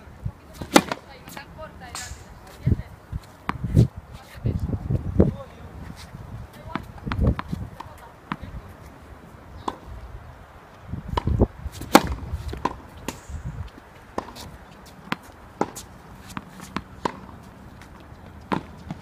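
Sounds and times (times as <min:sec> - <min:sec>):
tennis balls bouncing on court: 0:00.5 - 0:02.6, 0:03.2 - 0:03.7, 0:06.5 - 0:08.7, 0:09.6 - 0:09.9, 0:11.1 - 0:19.0
tennis rackets hitting balls: 0:00.5 - 0:02.7, 0:09.6 - 0:09.9, 0:11.1 - 0:19.0.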